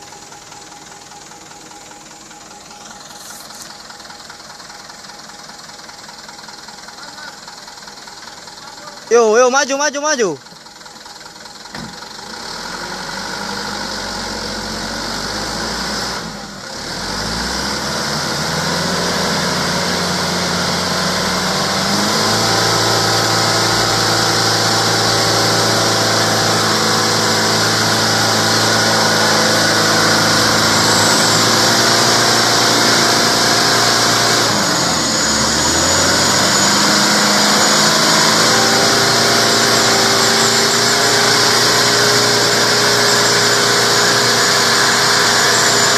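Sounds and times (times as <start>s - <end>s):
diesel truck engine under load: 0.0s - 45.9s.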